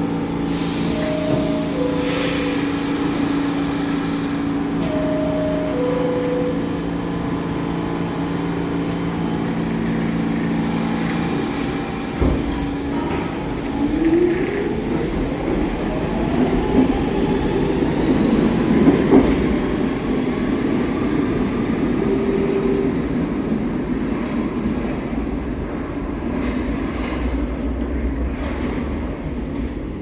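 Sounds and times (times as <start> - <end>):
subway train rumbling on rails: 0.0 - 30.0.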